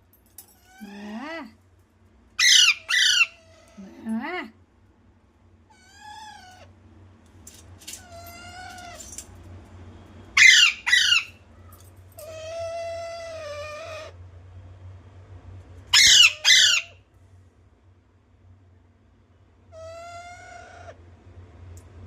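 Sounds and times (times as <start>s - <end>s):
parrot long cries: 2.4s - 3.8s, 5.7s - 6.7s, 8.0s - 9.2s, 10.4s - 11.4s, 12.2s - 14.2s, 15.9s - 17.0s, 19.7s - 21.0s
parrot short loud squawks: 10.4s - 11.3s, 16.0s - 17.0s.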